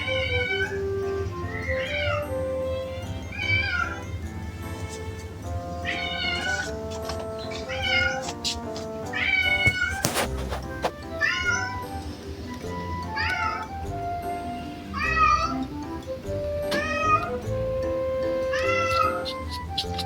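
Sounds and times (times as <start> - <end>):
cat meowing: 0.0 - 0.8, 1.4 - 4.2, 5.8 - 10.3, 11.2 - 11.8, 13.1 - 13.7, 14.9 - 15.6, 16.7 - 17.5, 18.2 - 20.0
background music: 0.0 - 20.0.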